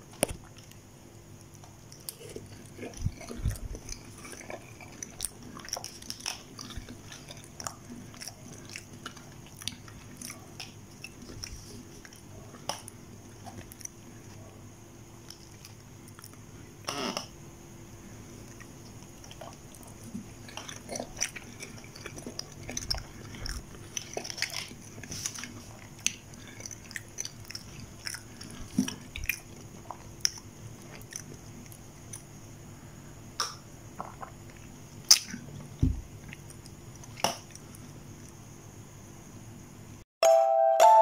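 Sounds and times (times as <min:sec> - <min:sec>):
person chewing: 0:00.0 - 0:14.5, 0:15.2 - 0:17.1, 0:18.4 - 0:32.4, 0:33.4 - 0:38.4
steady background hum: 0:00.0 - 0:40.0
mouth clicks and smacks: 0:33.4 - 0:35.5.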